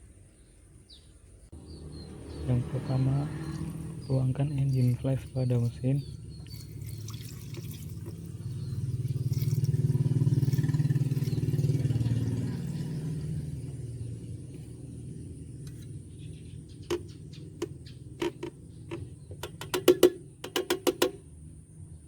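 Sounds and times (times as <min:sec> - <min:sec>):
car engine rumbling: 0:01.5 - 0:22.0.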